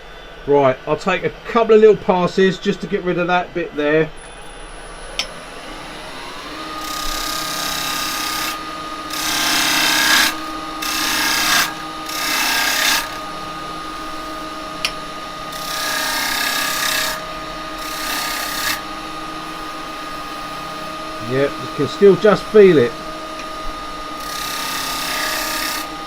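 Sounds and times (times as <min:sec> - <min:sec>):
wood lathe humming: 0:00.0 - 0:26.0
turning tool scraping wood: 0:06.8 - 0:26.0.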